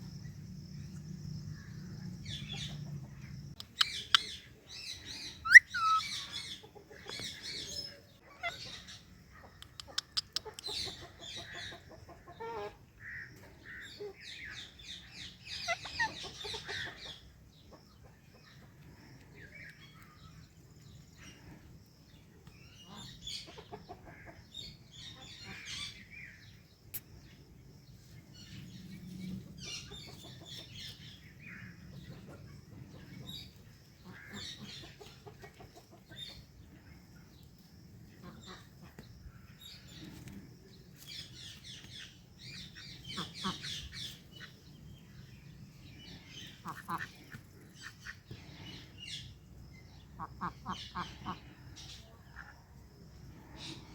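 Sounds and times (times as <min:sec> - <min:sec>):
parrots chirping and squawking: 0:05.2 - 0:06.6, 0:08.2 - 0:08.9, 0:15.5 - 0:16.8.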